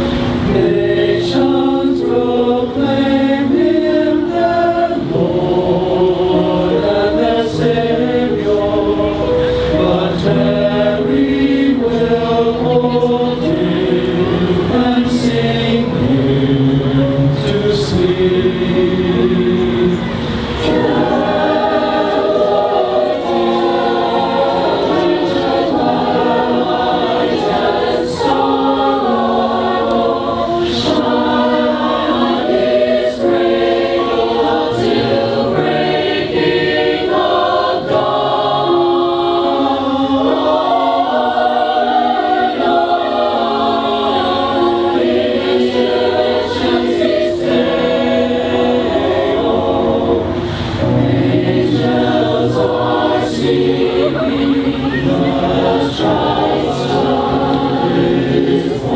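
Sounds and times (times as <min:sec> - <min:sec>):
choir singing in harmony: 0:00.0 - 0:58.9.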